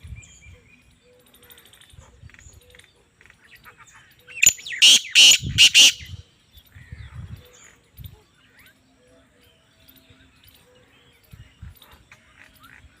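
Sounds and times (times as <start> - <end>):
francolin harsh call: 4.4 - 6.2.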